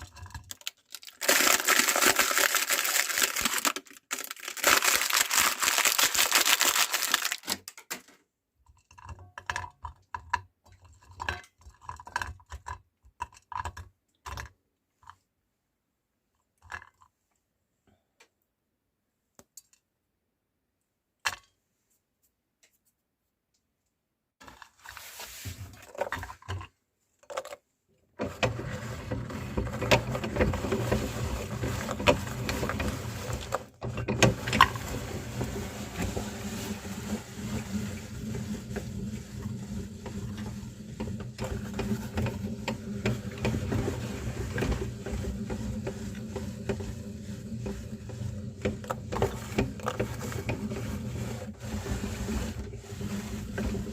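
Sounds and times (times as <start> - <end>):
biscuits crunching: 0.0 - 7.5.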